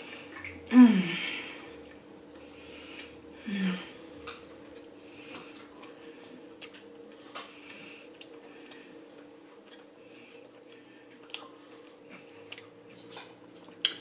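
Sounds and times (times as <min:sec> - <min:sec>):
faint room hum: 0:00.0 - 0:14.0
woman humming mmm: 0:00.3 - 0:01.6, 0:03.4 - 0:04.0
woman chewing: 0:06.6 - 0:14.0
wet mouth clicks: 0:12.5 - 0:14.0.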